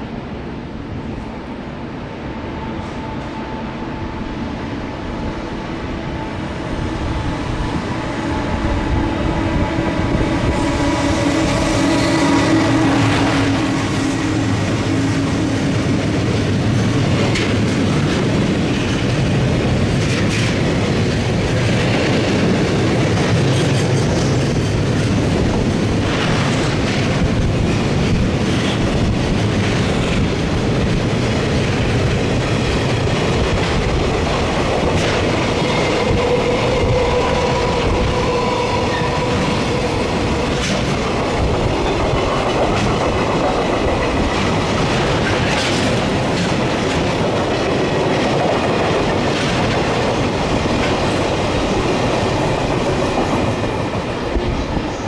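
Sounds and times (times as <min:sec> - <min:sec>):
freight train passing: 0:00.0 - 0:55.0
held locomotive tones: 0:00.0 - 0:55.0
wheels clacking over rail joints: 0:10.3 - 0:54.3.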